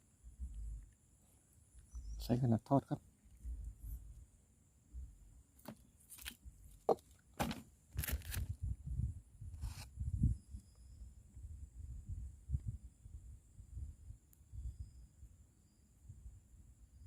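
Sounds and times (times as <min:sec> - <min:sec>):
wind buffeting microphone: 0:08.0 - 0:10.6.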